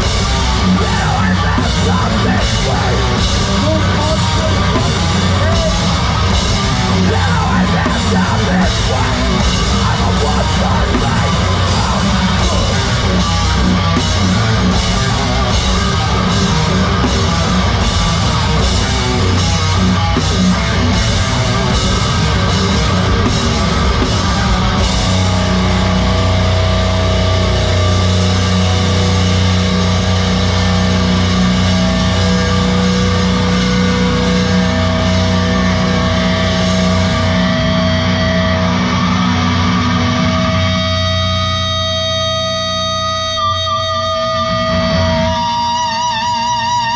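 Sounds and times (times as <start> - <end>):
drum beat: 0.0 - 25.4
distorted guitar: 0.0 - 46.9.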